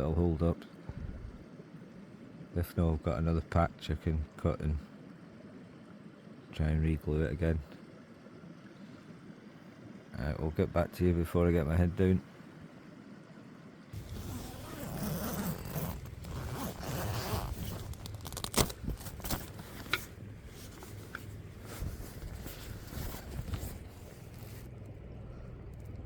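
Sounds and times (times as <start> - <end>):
handling noise: 14.0 - 24.7
zip rasping: 14.0 - 24.7.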